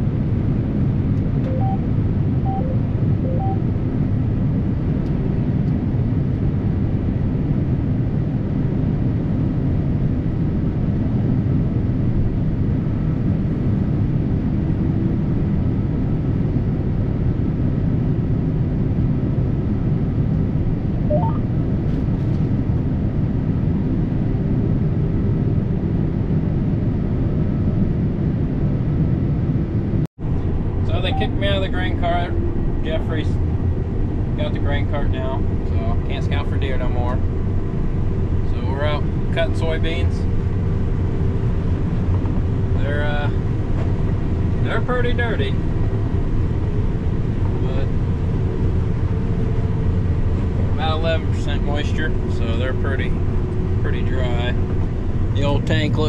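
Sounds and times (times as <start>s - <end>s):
combine harvester engine drone: 0.0s - 56.0s
brief rising chirp: 21.1s - 21.5s.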